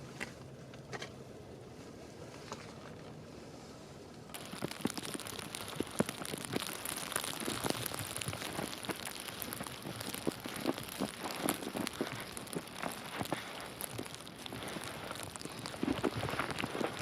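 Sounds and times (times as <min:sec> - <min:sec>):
falling snow pattering: 0:04.3 - 0:17.0.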